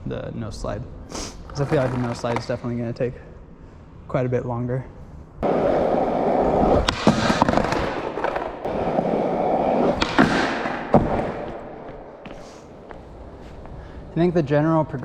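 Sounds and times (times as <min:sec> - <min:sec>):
skateboard wheels rolling on concrete: 0:01.5 - 0:02.8, 0:05.4 - 0:13.8.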